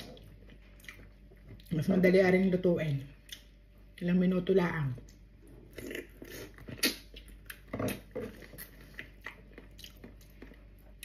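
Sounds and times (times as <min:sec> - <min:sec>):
person chewing with wet mouth clicks: 0:03.2 - 0:04.0.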